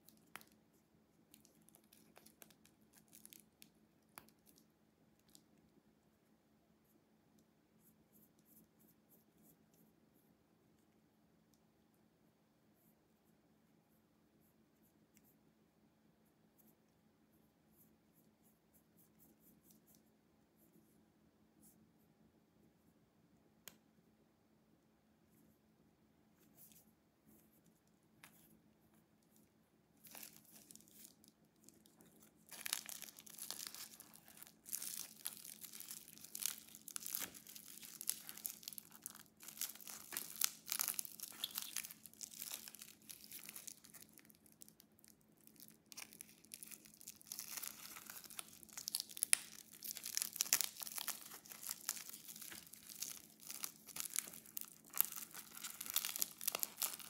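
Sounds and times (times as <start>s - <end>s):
packaging wrapping rustling and tearing: 30.0s - 44.8s, 45.4s - 57.0s.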